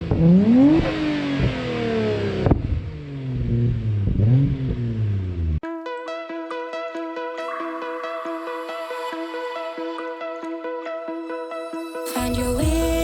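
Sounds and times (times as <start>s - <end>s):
car engine revving: 0.0s - 5.6s
electronic music: 5.6s - 13.0s.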